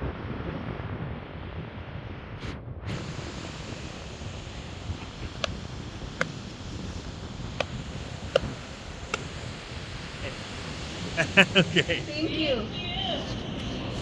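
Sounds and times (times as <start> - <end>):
wind: 0.0 - 14.0
surf: 2.4 - 14.0.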